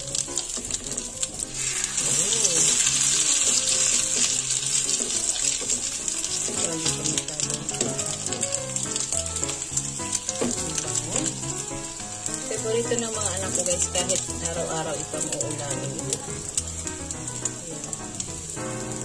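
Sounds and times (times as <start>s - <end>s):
omelettes sizzling in oil: 0.0s - 19.0s.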